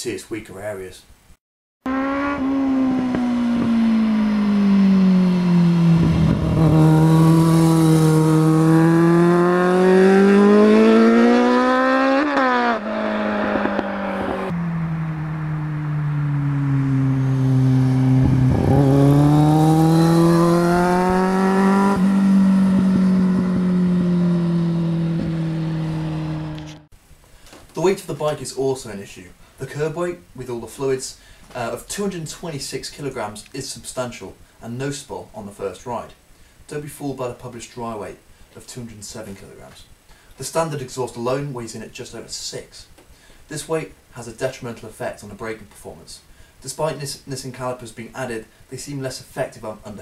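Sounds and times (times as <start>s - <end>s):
motorcycle engine revving: 1.9s - 26.9s.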